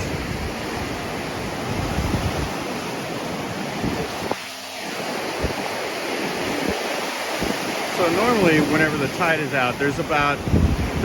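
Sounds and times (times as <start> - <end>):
surf breaking on beach: 0.0 - 11.0
wind rumbling on microphone: 0.0 - 11.0.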